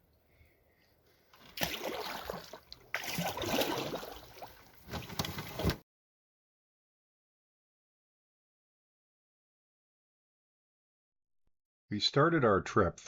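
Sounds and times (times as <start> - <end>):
canoe paddle strokes: 1.4 - 5.8
water splashing around hull: 1.4 - 5.8.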